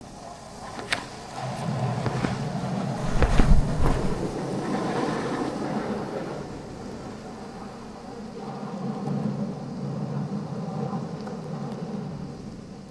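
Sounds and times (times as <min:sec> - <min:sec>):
longboard wheels rolling on pavement: 0:00.4 - 0:04.4
heavy low thump: 0:03.0 - 0:04.4.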